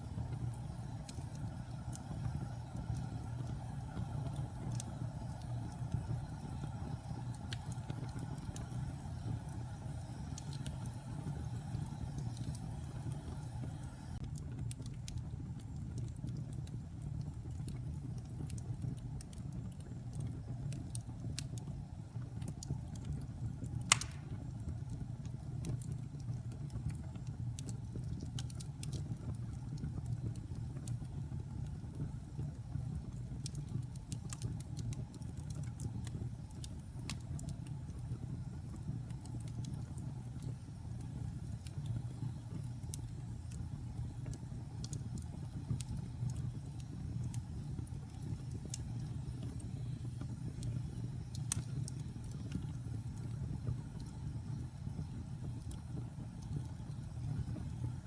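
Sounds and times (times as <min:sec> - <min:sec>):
fire crackling: 0:00.0 - 0:58.0
wood fire rumbling: 0:00.0 - 0:58.0
loud sharp pop: 0:23.9 - 0:24.4.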